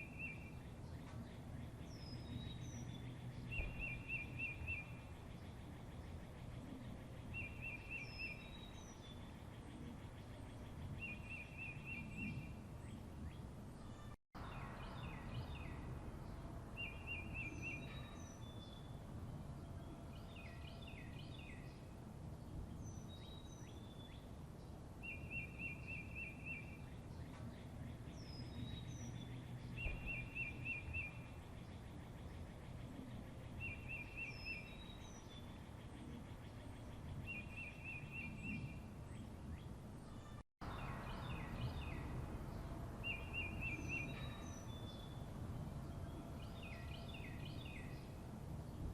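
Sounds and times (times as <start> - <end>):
birds chirping and whistling: 0.0 - 15.8, 16.8 - 19.0, 25.0 - 48.2
low background rumble: 38.3 - 48.9.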